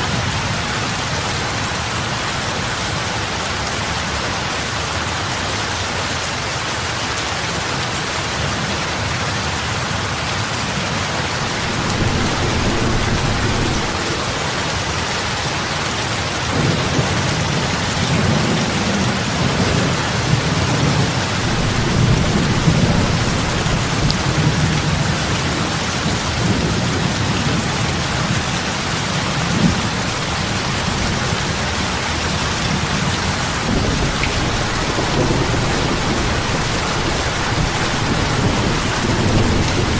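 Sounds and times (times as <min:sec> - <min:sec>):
heavy rain on water: 0:00.0 - 0:39.9.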